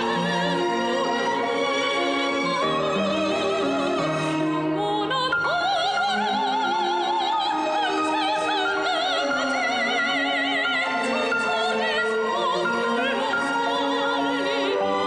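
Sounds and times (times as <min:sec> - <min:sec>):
classical singing with vibrato: 0:00.0 - 0:15.0
orchestral accompaniment: 0:00.0 - 0:15.0.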